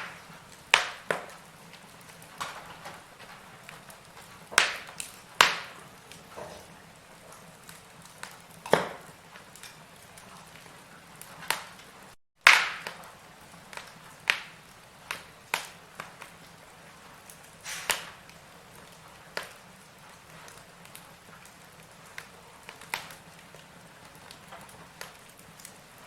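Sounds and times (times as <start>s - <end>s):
firewood crackling and popping: 0.0s - 26.0s
faint hiss: 17.6s - 18.3s.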